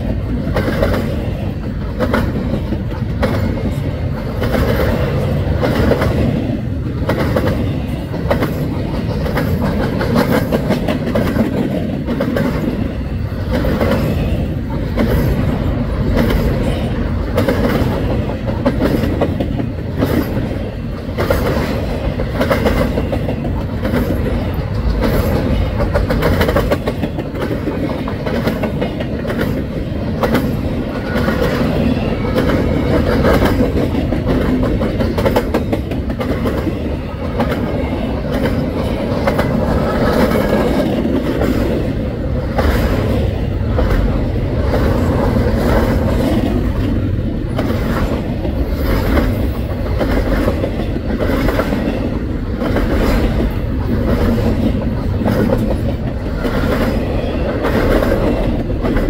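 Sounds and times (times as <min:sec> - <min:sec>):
freight cars rumbling: 0:00.0 - 0:59.0
wheels clacking over rails: 0:00.0 - 0:59.0.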